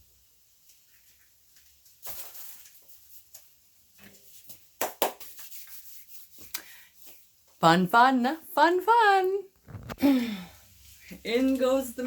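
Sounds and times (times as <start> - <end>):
rustle: 0.5 - 4.6.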